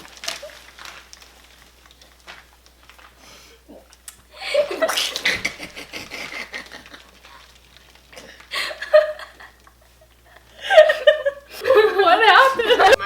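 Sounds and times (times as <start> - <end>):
slime squishing and popping: 0.0 - 5.4, 6.7 - 8.5.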